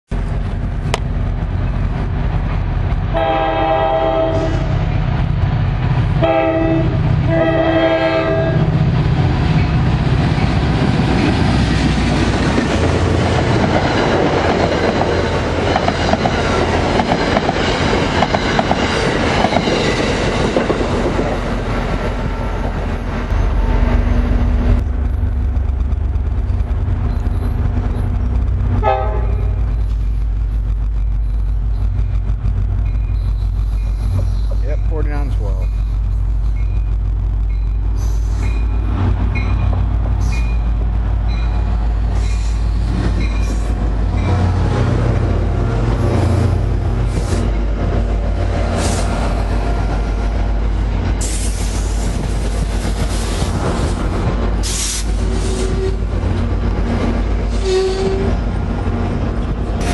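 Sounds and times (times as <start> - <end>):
deep loud drone: 0.1 - 38.1
train rumbling past: 0.1 - 59.9
train horn blasts: 3.1 - 4.8, 6.2 - 8.7, 28.8 - 29.6, 55.4 - 56.1, 57.5 - 58.4
wheels clacking over rails: 8.9 - 23.8.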